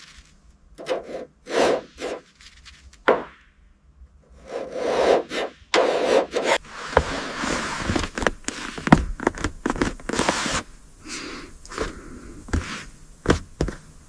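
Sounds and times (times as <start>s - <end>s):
rasping scrape: 0.8s - 2.3s, 4.4s - 9.0s.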